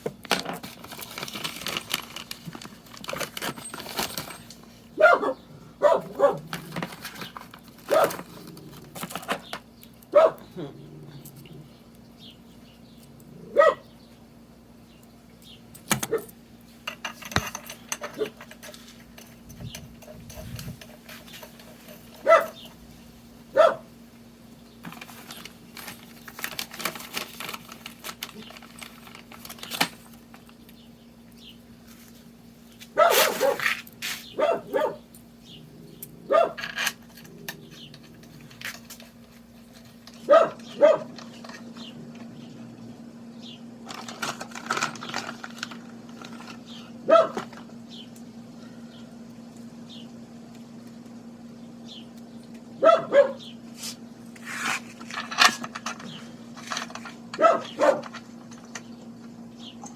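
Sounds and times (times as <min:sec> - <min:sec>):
steady low hum: 0:00.0 - 0:59.9
dog barking: 0:05.0 - 0:06.5, 0:07.9 - 0:08.2, 0:10.1 - 0:10.5, 0:13.5 - 0:13.9, 0:22.2 - 0:22.6, 0:23.5 - 0:23.9, 0:33.0 - 0:33.7, 0:34.4 - 0:35.0, 0:36.3 - 0:36.6, 0:40.3 - 0:41.2, 0:47.0 - 0:47.4, 0:52.8 - 0:53.5, 0:57.4 - 0:58.1.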